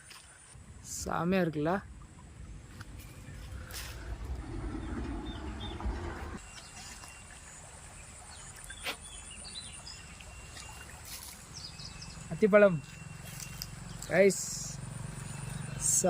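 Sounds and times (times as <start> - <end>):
low rumble: 1.8 - 6.4
bird chirps: 4.7 - 16.0.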